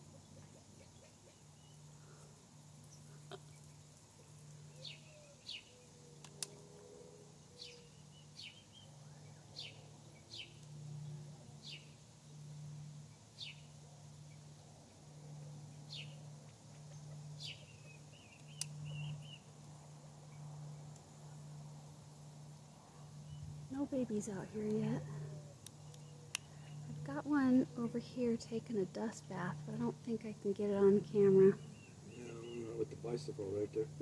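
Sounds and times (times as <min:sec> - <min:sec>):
steady low hum: 0:00.0 - 0:34.0
bird chirps: 0:04.7 - 0:06.0, 0:07.6 - 0:10.6, 0:15.8 - 0:19.5, 0:31.4 - 0:33.0.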